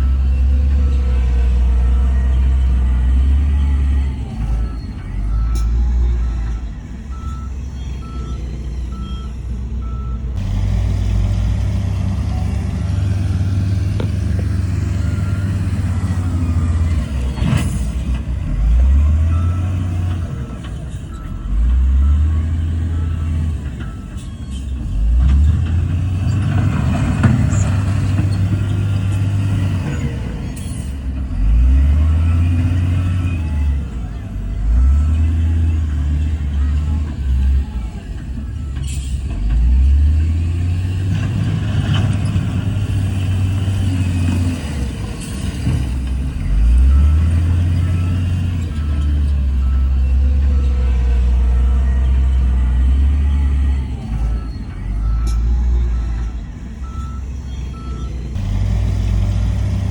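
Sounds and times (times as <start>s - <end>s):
reversing alarm beeping: 0.0s - 10.4s, 12.2s - 25.2s, 42.2s - 58.4s
diesel machinery revving: 0.0s - 59.9s.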